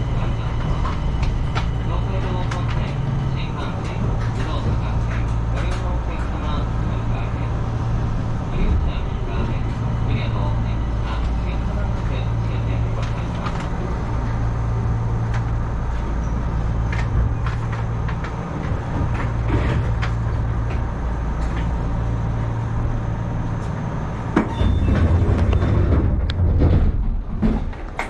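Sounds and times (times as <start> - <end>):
electric train humming: 0.0 - 28.0.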